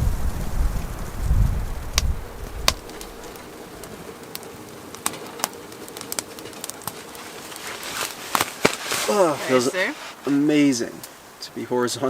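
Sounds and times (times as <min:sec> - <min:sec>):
wind buffeting microphone: 0:00.0 - 0:04.6
wood stove crackling and popping: 0:00.0 - 0:12.0.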